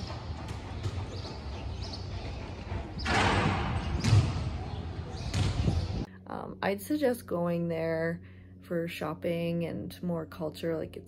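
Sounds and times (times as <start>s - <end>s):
dull low thuds: 0.0s - 6.1s.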